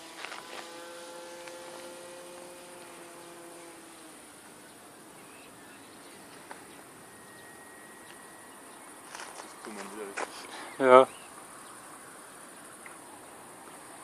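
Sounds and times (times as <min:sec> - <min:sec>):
model airplane motor droning: 0:00.0 - 0:08.8
crickets chirring: 0:00.0 - 0:14.0.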